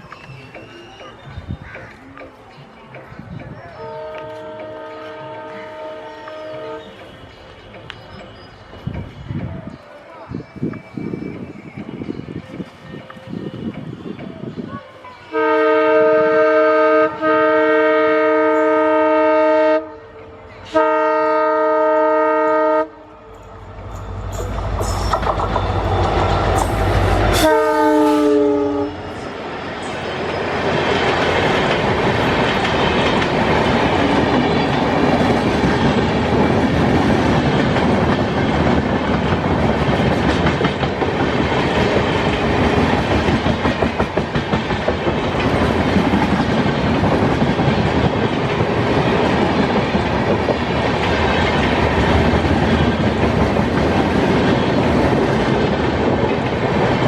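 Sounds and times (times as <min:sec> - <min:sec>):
wheels clickety-clack over rail joints: 0:00.0 - 0:15.0, 0:23.9 - 0:27.5, 0:29.2 - 0:57.0
diesel locomotive engine rumble: 0:00.0 - 0:57.0
train horn: 0:03.8 - 0:07.5, 0:15.3 - 0:23.3, 0:24.3 - 0:29.2.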